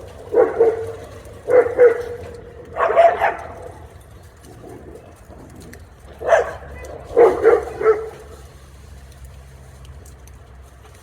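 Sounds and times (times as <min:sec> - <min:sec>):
dog barking: 0:00.2 - 0:03.8, 0:06.2 - 0:08.4.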